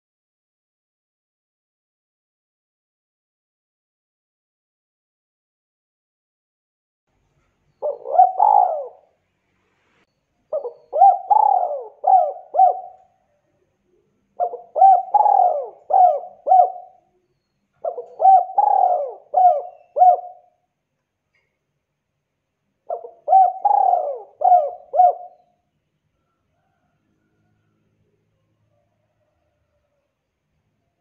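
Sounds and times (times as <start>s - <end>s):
dove cooing: 7.8s - 9.2s, 10.5s - 17.2s, 17.8s - 20.6s, 22.9s - 25.6s.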